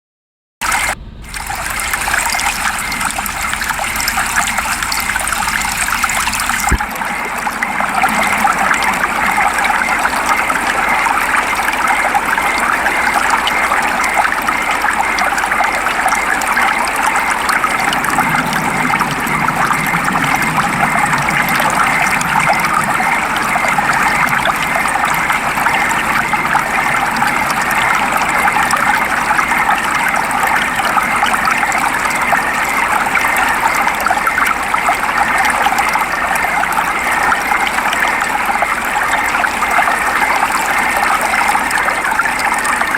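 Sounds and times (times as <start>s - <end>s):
steady rain falling: 0.6s - 13.0s
water trickling: 0.6s - 42.9s.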